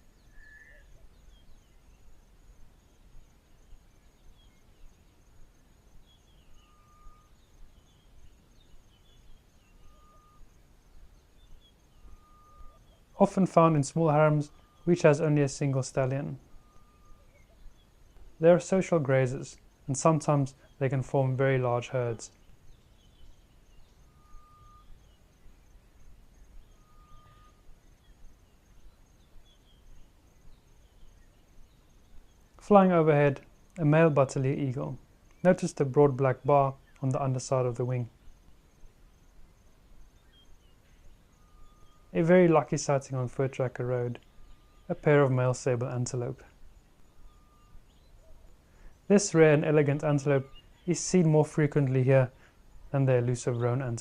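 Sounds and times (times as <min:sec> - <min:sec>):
distant birds calling: 0:00.0 - 0:54.0
pulsing insect trill: 0:00.0 - 0:54.0
whistled bird note: 0:00.2 - 0:01.5, 0:09.0 - 0:10.5, 0:11.4 - 0:13.0, 0:23.0 - 0:25.2, 0:26.5 - 0:27.7, 0:40.3 - 0:42.2
high bird chirps: 0:00.2 - 0:02.1, 0:40.1 - 0:42.2.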